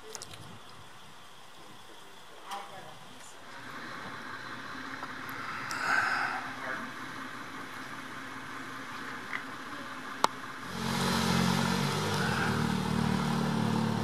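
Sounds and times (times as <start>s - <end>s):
engine running at low revs: 3.4s - 14.0s.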